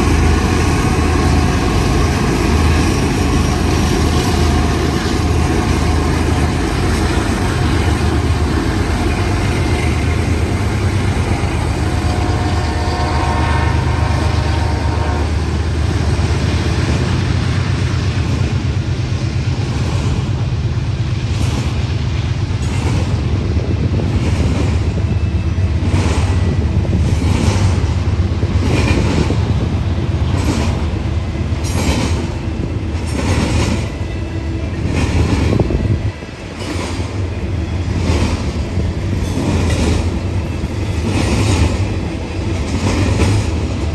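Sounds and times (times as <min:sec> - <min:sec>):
freight train rumbling past: 0:00.0 - 0:43.9
train horn chord: 0:11.7 - 0:15.5
wheels clacking over rail joints: 0:19.5 - 0:43.9.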